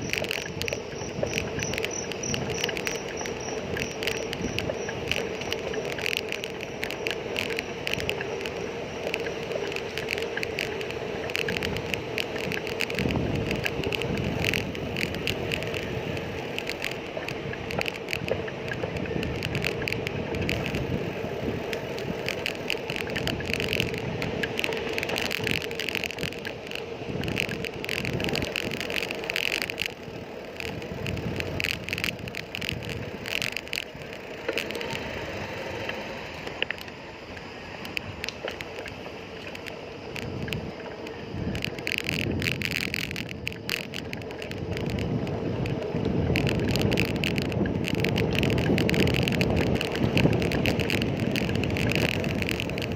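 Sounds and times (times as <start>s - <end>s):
bicycle parts rattling: 0.0s - 35.0s
road and tyre noise: 0.0s - 52.9s.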